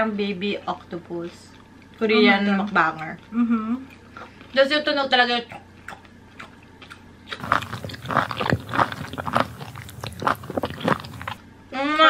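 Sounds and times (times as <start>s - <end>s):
wet chewing mouth sounds: 5.5s - 11.4s.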